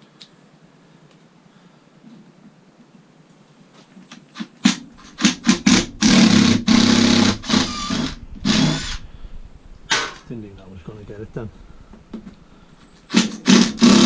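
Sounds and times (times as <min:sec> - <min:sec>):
power driver rattling drone: 0:04.6 - 0:10.6, 0:13.0 - 0:14.0.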